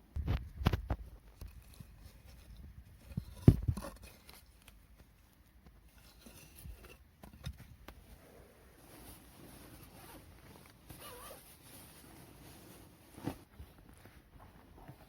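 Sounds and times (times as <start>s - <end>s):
knocks and thumps: 3.1s - 4.0s.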